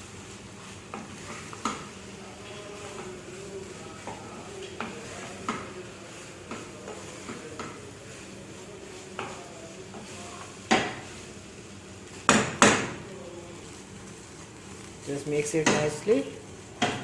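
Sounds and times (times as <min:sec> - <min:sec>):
spatula scraping a pan: 0:00.3 - 0:11.3
loud knocks on pan: 0:12.3 - 0:13.0.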